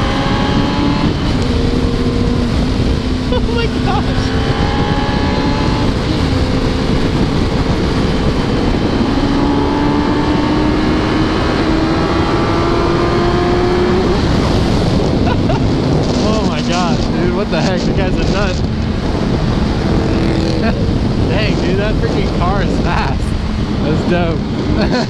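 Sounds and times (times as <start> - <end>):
motorcycle engine running: 0.0 - 25.0
wind noise on microphone: 0.0 - 25.0.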